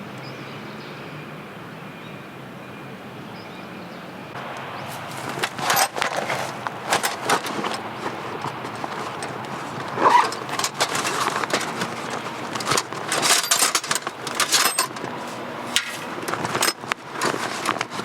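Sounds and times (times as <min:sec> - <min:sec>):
rustling: 0:04.4 - 0:18.0
clicks and knocks of gear: 0:04.9 - 0:18.0
metal clinks: 0:05.0 - 0:18.0.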